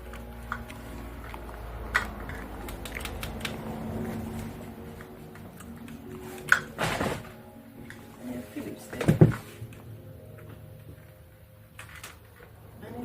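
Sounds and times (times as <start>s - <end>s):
small tools clicking and tapping: 0.0s - 3.6s
faint steady background tones: 0.0s - 13.0s.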